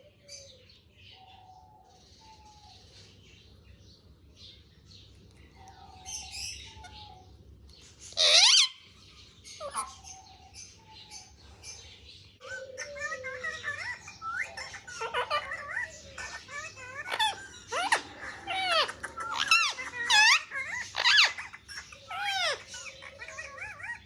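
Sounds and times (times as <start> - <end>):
parrot warbling chatter: 8.1 - 10.2, 12.4 - 24.0
parrot screech: 8.2 - 8.8.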